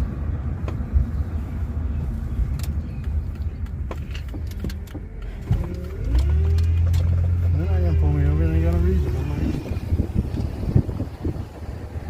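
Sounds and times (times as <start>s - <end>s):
engine and road rumble: 0.0s - 12.0s
faint clicks and knocks: 2.5s - 7.4s.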